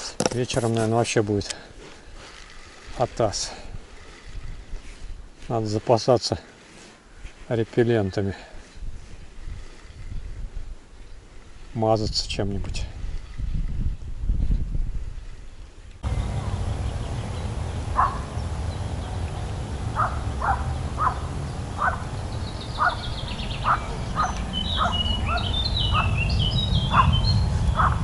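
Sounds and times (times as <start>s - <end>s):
high twittering birdsong: 15.4s - 28.0s
low rumble: 16.0s - 28.0s.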